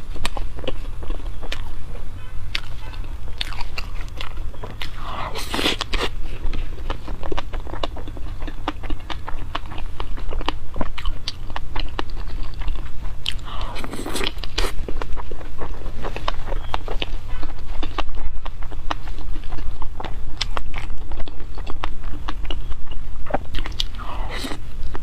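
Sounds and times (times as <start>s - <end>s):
wet chewing and biting: 0.0s - 25.0s
crunchy bites: 2.5s - 17.1s.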